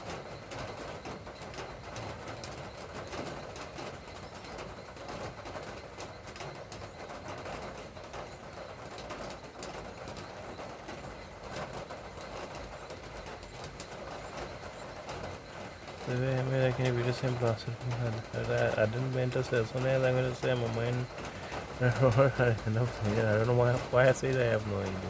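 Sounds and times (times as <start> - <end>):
light rain pattering: 0.0 - 25.0.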